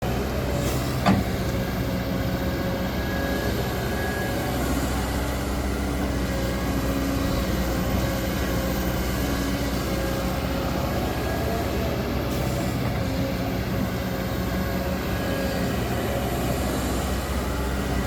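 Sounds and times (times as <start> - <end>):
excavator diesel engine rumbling: 0.0 - 18.0.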